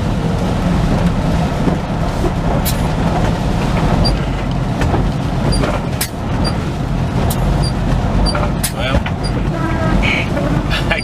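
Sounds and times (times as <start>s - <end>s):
truck diesel engine running: 0.0s - 11.0s
sharp clicks and knocks: 7.2s - 9.5s.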